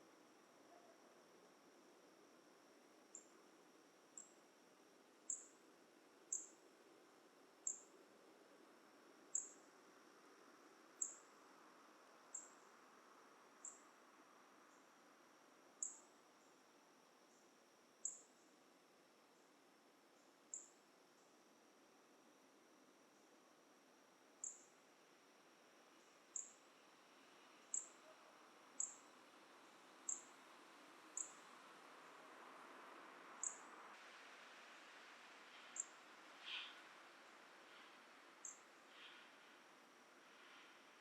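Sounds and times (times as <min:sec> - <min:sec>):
high insect drone: 0:25.9 - 0:28.1, 0:28.7 - 0:33.9.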